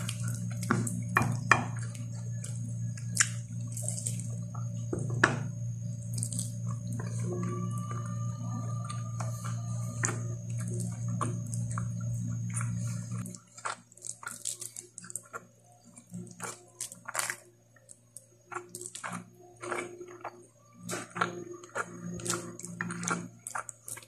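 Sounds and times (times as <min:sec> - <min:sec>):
steady low hum: 0:00.0 - 0:24.0
wet chewing and mouth smacks: 0:01.8 - 0:04.5, 0:06.1 - 0:07.2, 0:08.8 - 0:24.0.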